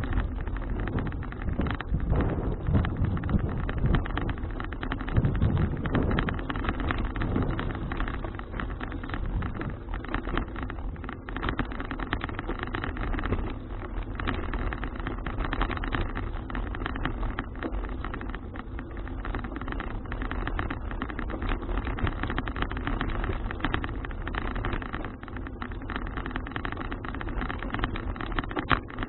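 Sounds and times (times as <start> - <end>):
wind on microphone: 0.0 - 11.4
bicycle rattling over road: 0.0 - 29.0.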